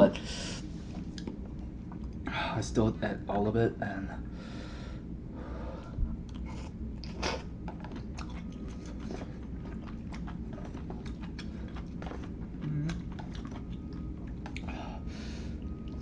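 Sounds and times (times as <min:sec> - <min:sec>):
noodles being chewed: 0:06.2 - 0:16.0.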